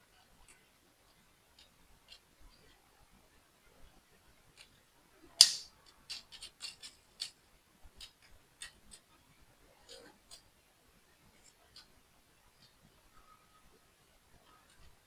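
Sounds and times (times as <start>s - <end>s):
plastic part snapping: 5.4s - 5.7s.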